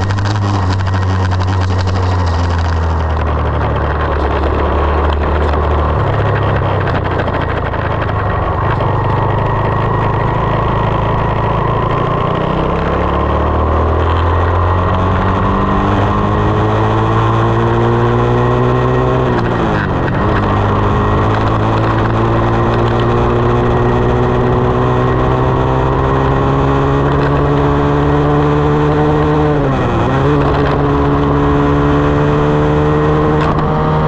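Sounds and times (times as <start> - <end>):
dirt bike engine running: 0.0 - 34.0.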